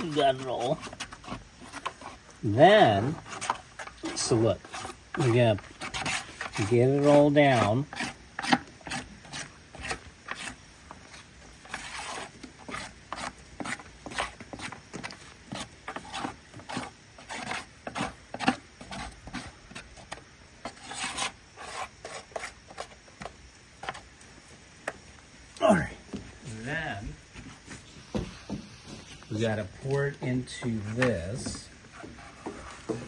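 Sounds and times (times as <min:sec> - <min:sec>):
utensil scraping plaster in container: 0:00.0 - 0:14.8, 0:15.5 - 0:23.0.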